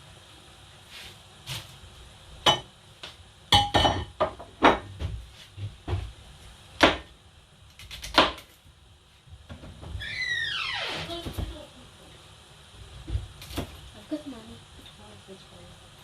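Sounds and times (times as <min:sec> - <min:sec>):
cookware knocking and clinking: 0:03.6 - 0:04.8.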